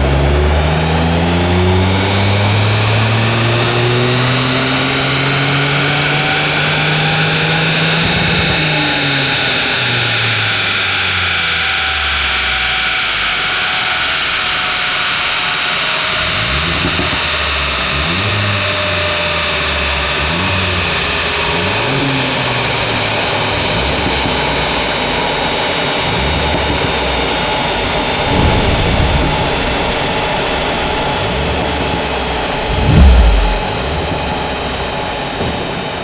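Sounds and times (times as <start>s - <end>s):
car engine revving: 0.0s - 12.5s, 16.1s - 35.5s
rush of air: 32.3s - 34.4s.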